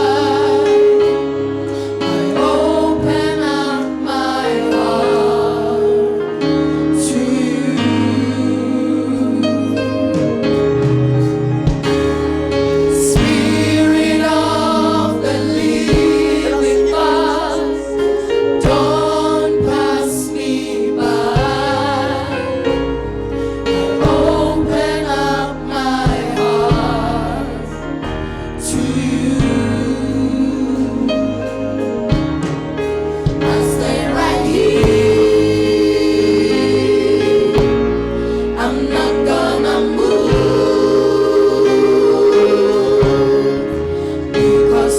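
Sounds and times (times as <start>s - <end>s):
bass: 0.0s - 44.9s
choir singing gospel song: 0.0s - 44.9s
keyboard: 0.0s - 44.9s
drums: 9.9s - 44.9s.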